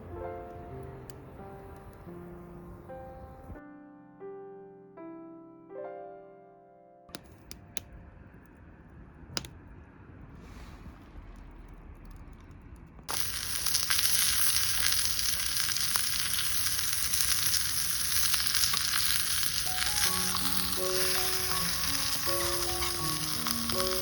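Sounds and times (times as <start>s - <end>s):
meat sizzling on a griddle: 13.1s - 24.0s.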